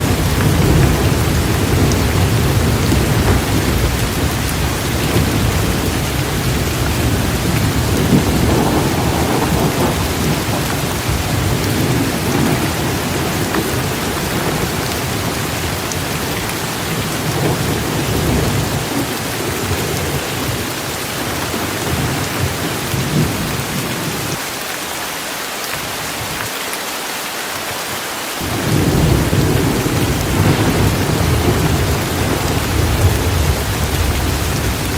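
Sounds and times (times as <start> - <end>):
thunder rumbling: 0.0 - 24.4, 28.4 - 34.9
heavy rain pouring: 0.0 - 34.9.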